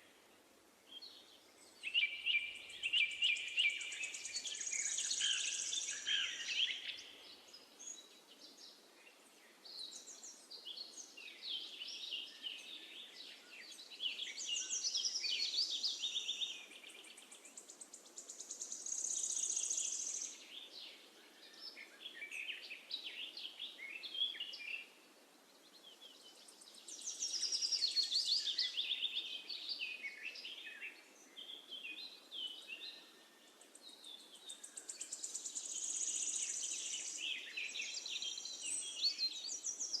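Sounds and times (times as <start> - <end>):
faint background hiss: 0.0 - 40.0
songbirds chirping and trilling: 0.0 - 40.0.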